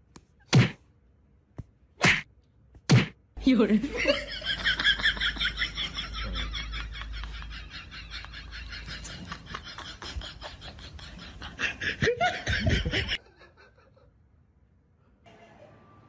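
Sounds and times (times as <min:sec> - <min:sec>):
person laughing breathily: 0:08.8 - 0:14.0.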